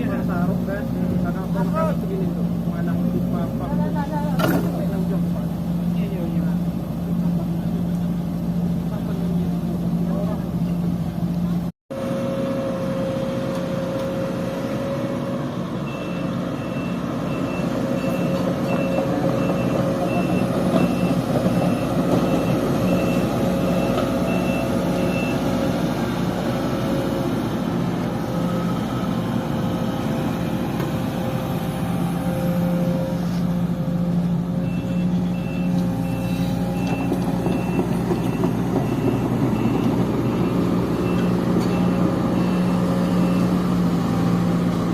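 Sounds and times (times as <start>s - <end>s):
excavator diesel engine running: 0.0s - 44.9s
high-pitched warning beeps: 15.8s - 25.4s, 34.6s - 43.6s.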